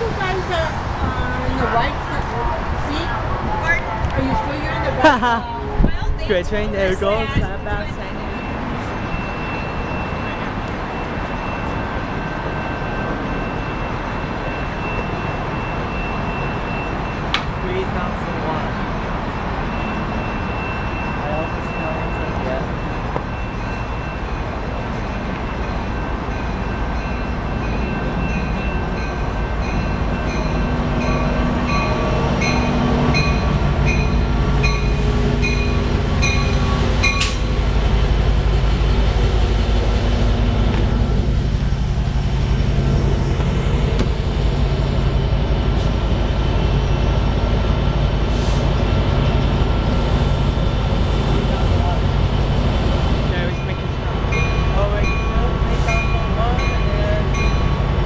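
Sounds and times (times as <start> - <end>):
diesel train rumble: 0.0 - 58.0
bell ringing: 19.8 - 37.6, 53.5 - 57.9.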